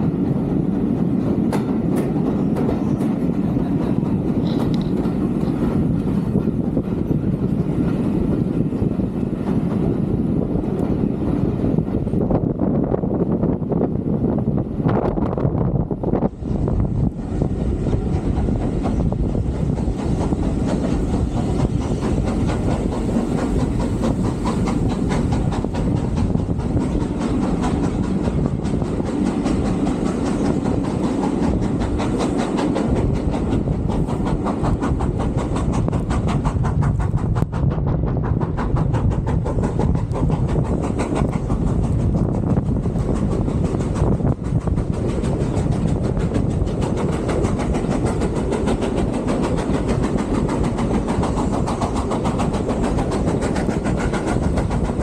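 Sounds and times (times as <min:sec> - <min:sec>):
steam train running rumble: 0:00.0 - 0:55.0.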